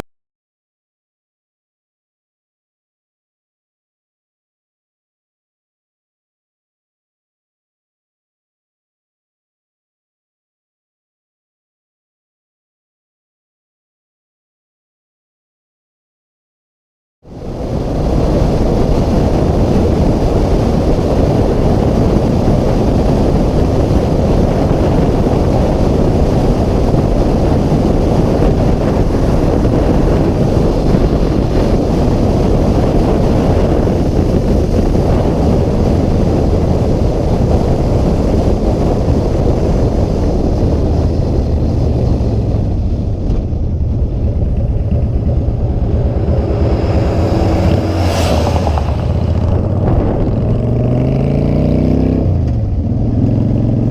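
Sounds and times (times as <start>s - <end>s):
wind rush on microphone: 17.2s - 53.9s
motorcycle engine drone: 17.3s - 53.9s.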